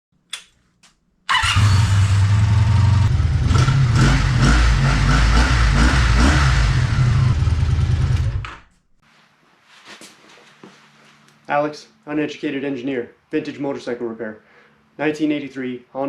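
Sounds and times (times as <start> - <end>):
motorcycle engine running loud: 1.6 - 8.6.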